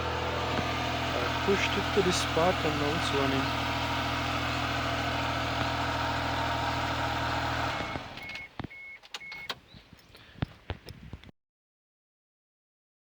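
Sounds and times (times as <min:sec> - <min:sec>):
truck engine idling: 0:00.0 - 0:10.8
short beeps: 0:08.2 - 0:09.6.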